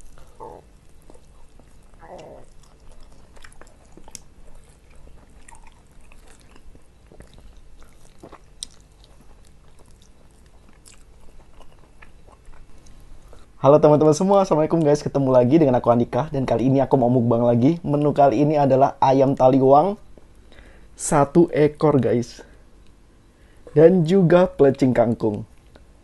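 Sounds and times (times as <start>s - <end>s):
biting and chewing: 0.0s - 13.5s.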